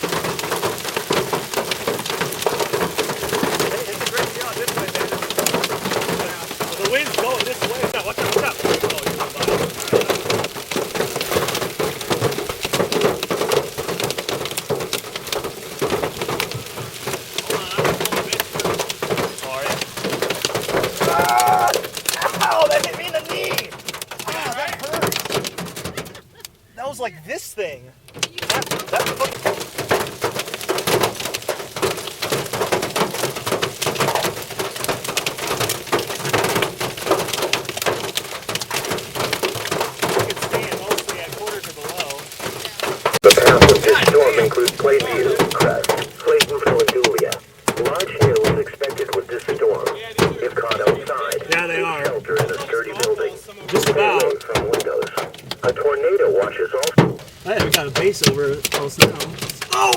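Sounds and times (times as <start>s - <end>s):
heavy rain on hard surface: 0.0s - 59.9s.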